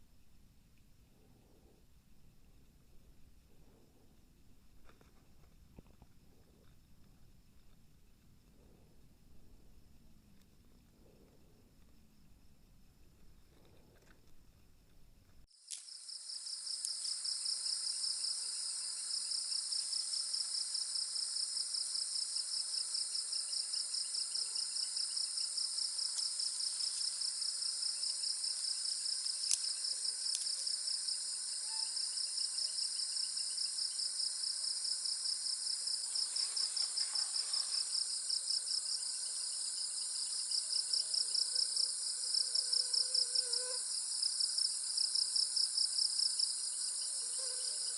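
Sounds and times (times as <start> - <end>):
insects trilling: 15.6 - 47.9.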